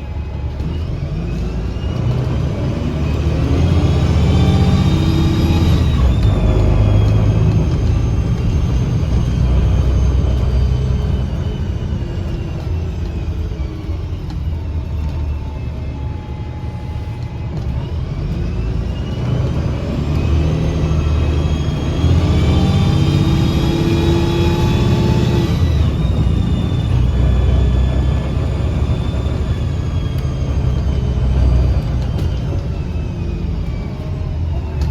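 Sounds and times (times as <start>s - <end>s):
bus drivetrain whining: 0.0s - 34.9s
sharp whistling from engine: 0.0s - 34.9s.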